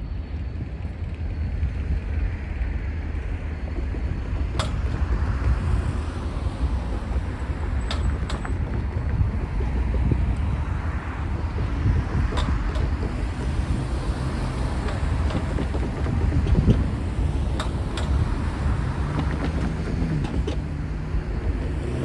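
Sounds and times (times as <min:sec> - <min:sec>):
freight train rumbling: 0:00.0 - 0:22.0
sharp metallic clicks: 0:03.8 - 0:20.7.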